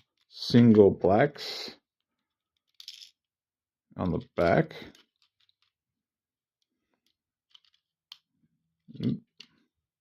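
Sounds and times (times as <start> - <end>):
plastic bricks clicking: 4.2 - 5.8, 6.6 - 9.7.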